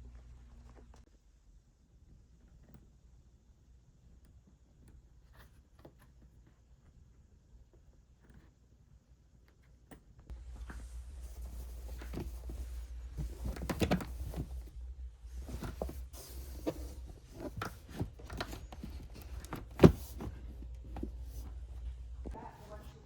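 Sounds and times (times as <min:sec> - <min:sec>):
steady low rumble: 0:10.3 - 0:17.5, 0:20.3 - 0:23.0.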